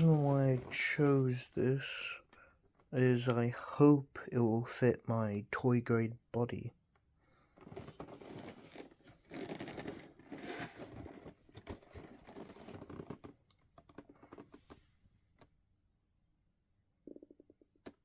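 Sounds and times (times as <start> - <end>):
packaging rustling and scratching: 7.6 - 14.8.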